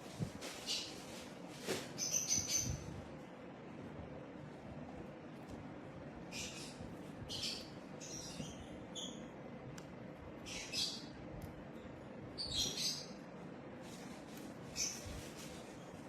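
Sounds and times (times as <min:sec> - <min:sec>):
parrot chirping and squeaking: 0:02.0 - 0:03.0, 0:06.3 - 0:09.3, 0:10.4 - 0:11.1, 0:12.4 - 0:13.2, 0:14.6 - 0:15.2.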